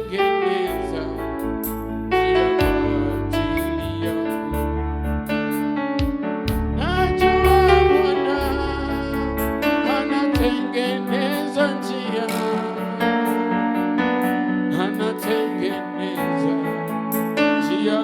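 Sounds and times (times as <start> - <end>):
person singing: 0.0 - 4.8, 6.5 - 13.6, 14.7 - 18.0
electronic keyboard chords: 0.0 - 18.0
deep bass: 0.7 - 5.4, 6.0 - 9.7.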